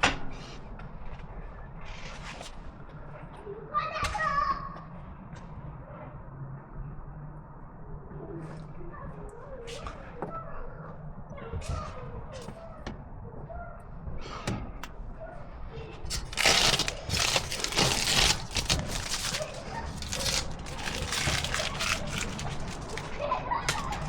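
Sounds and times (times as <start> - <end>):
loud rustling or scraping: 16.0 - 24.0.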